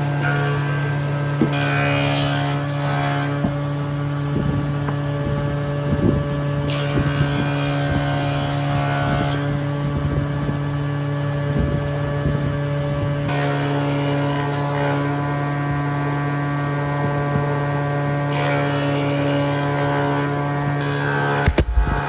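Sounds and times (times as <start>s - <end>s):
power tool motor humming: 0.0s - 12.4s, 18.2s - 22.0s.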